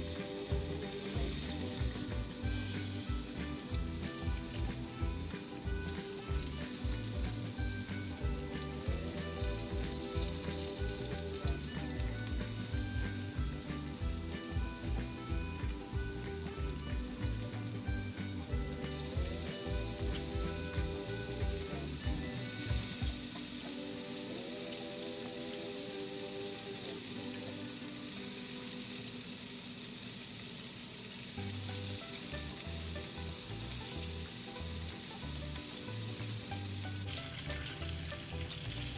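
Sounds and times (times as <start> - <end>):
background music with bass beat: 0.0 - 23.8
chicken sizzling in hot oil: 0.0 - 38.9.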